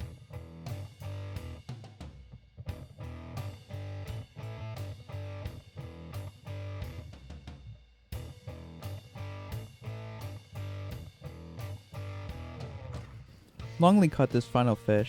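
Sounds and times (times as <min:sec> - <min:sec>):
electric guitar: 0:00.0 - 0:01.8, 0:02.7 - 0:07.2, 0:08.2 - 0:13.8
steady drum beat: 0:00.0 - 0:15.0.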